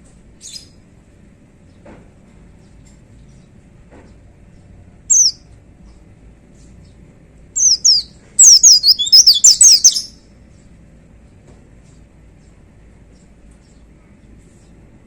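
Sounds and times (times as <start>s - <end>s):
bird singing high chirps: 5.1s - 5.4s, 7.6s - 10.2s.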